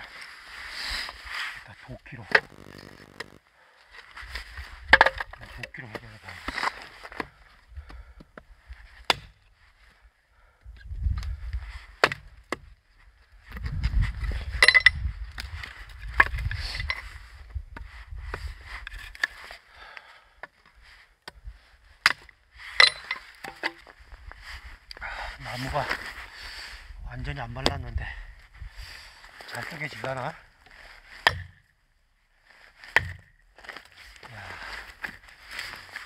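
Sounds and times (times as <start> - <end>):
axe chopping firewood: 9.1 - 9.3, 12.0 - 12.6, 31.2 - 31.6, 32.9 - 33.3.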